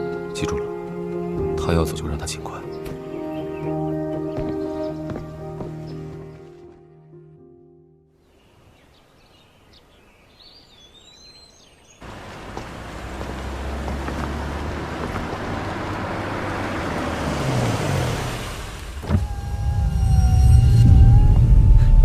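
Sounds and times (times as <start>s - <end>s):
faint birds chirping: 0.0s - 7.4s, 8.1s - 17.1s
car driving: 12.0s - 22.0s.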